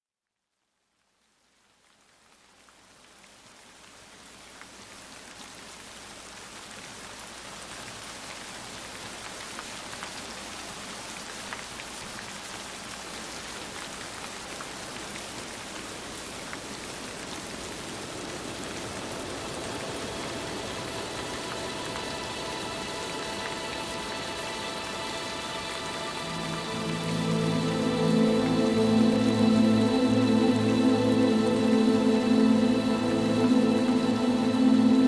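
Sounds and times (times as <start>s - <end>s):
steady rain falling: 0.5s - 35.0s
raindrops ticking on a surface: 0.6s - 35.0s
soft music with held notes: 19.1s - 35.0s.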